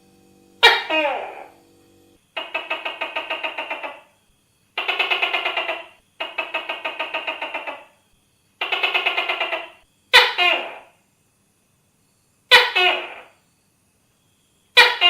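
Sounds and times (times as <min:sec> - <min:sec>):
gecko calling: 0:00.6 - 0:01.6, 0:02.2 - 0:11.0, 0:12.5 - 0:13.4, 0:14.7 - 0:15.0.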